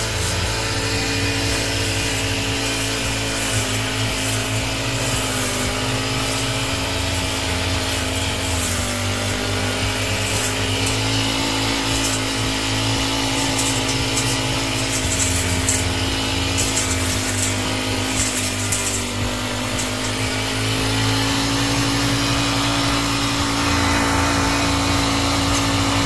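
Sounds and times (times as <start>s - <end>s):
petrol garden trimmer running: 0.0s - 26.0s.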